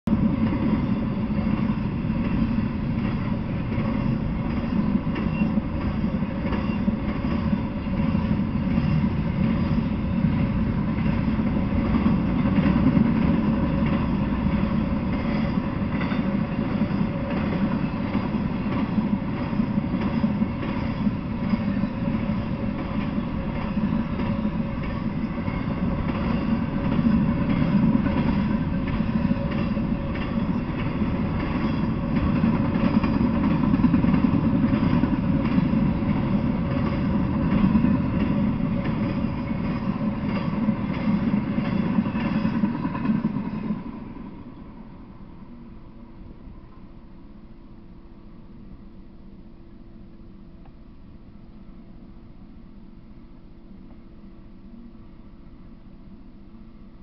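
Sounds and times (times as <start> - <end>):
train wheels rumbling on rail: 0.0 - 51.0
wheels clicking over rail joints: 0.1 - 43.8.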